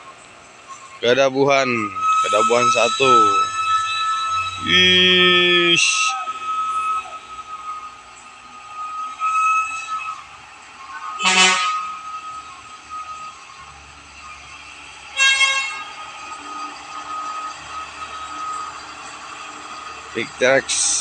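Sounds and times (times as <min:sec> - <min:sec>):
traffic: 0:00.0 - 0:21.0
vehicle horn blasts: 0:01.8 - 0:07.8, 0:11.0 - 0:12.4, 0:15.1 - 0:16.0.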